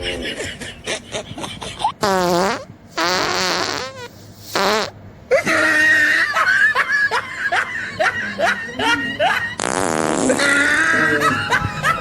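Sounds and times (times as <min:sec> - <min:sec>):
prank fart noises: 0:02.0 - 0:05.0, 0:09.6 - 0:10.8.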